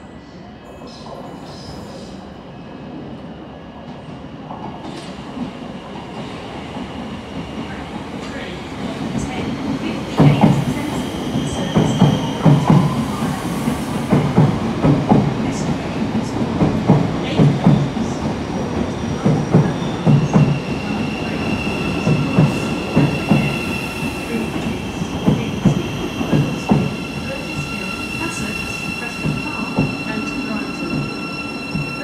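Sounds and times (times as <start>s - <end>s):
steady high squeal: 19.6s - 32.0s.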